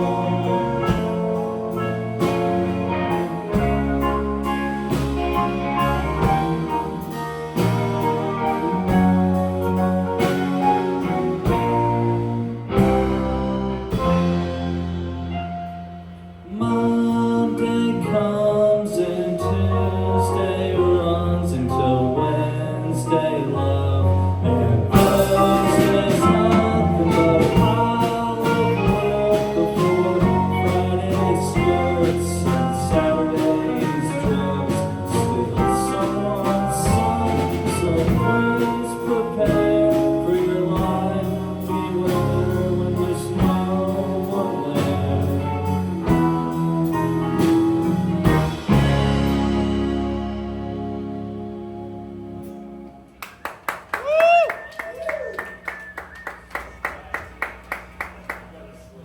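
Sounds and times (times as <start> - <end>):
live band playing with singing: 0.0 - 53.1.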